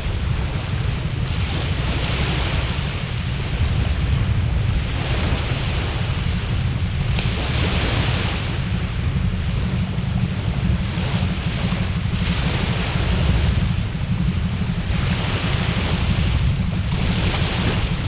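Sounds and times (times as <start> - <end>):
bonfire burning: 0.0 - 18.0
wind on microphone: 0.0 - 18.0
fire crackling pops: 6.9 - 7.4.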